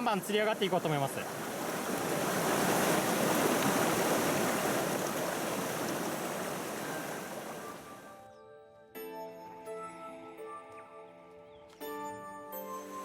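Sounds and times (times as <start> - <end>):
rushing mountain stream: 0.0 - 8.1.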